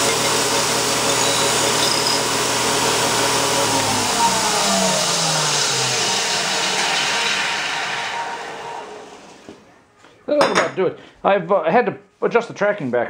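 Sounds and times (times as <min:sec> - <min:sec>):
grinder motor hum: 0:00.0 - 0:09.7.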